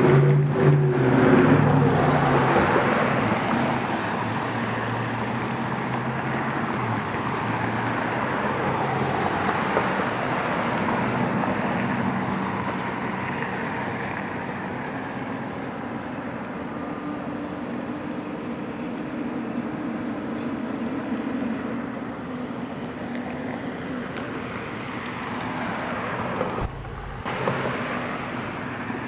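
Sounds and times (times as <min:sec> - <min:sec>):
garbage truck engine running: 0:26.6 - 0:27.9.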